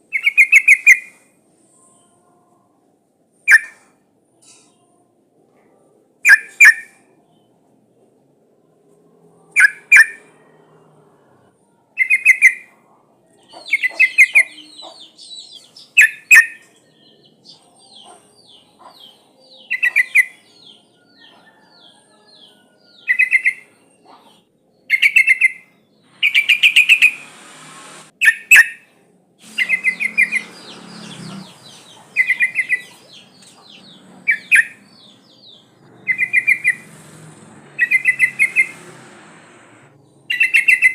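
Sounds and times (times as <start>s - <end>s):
fast high chirps: 29.4s - 40.9s.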